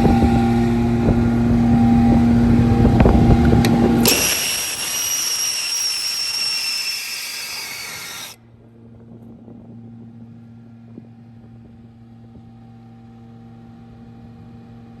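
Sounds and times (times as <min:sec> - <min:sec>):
loud hiss with whistling tone: 0:04.0 - 0:08.4.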